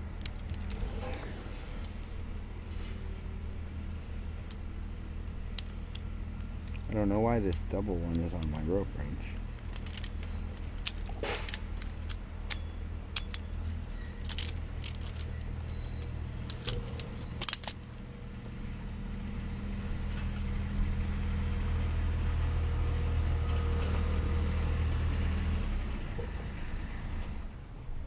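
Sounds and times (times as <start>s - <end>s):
metal climbing hardware clinking: 0.0s - 2.0s, 4.4s - 18.2s
low engine drone: 0.0s - 28.0s.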